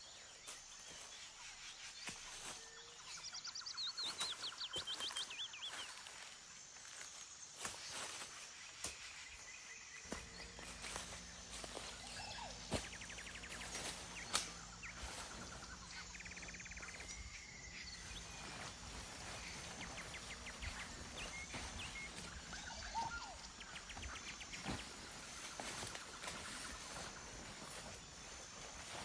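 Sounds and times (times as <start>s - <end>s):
rapid rattling trills: 10.2s - 29.0s.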